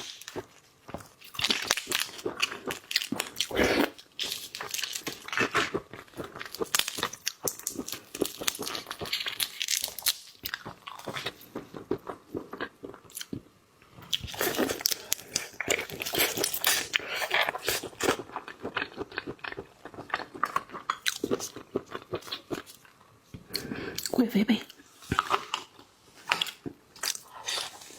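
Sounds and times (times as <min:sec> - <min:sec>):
crunching and biting seafood: 0:00.0 - 0:13.4, 0:14.1 - 0:22.8.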